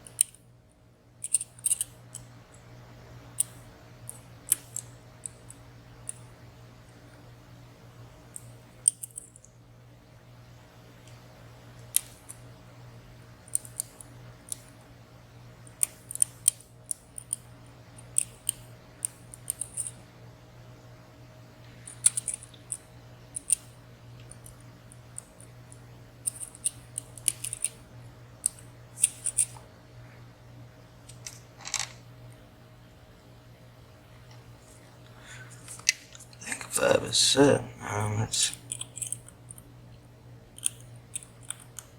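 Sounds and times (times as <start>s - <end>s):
lock picks clicking in padlock: 1.2s - 2.2s, 8.4s - 9.4s, 18.0s - 19.9s, 21.9s - 22.8s, 23.4s - 23.7s, 26.3s - 27.8s, 38.7s - 39.6s, 40.6s - 41.9s.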